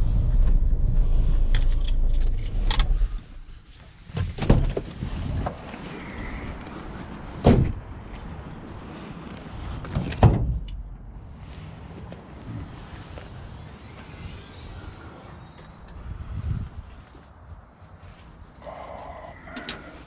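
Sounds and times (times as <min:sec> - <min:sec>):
wind rumble on microphone: 0:00.0 - 0:18.6.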